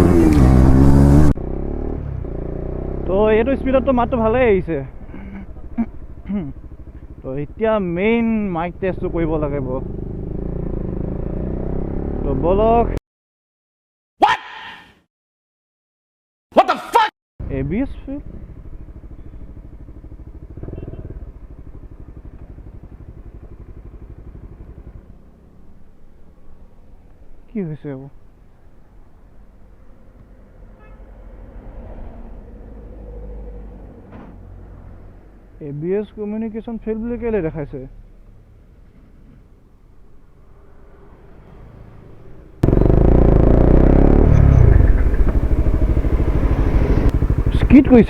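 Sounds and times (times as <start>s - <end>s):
motorcycle engine running: 0.0s - 12.2s, 17.4s - 27.2s, 42.6s - 48.0s.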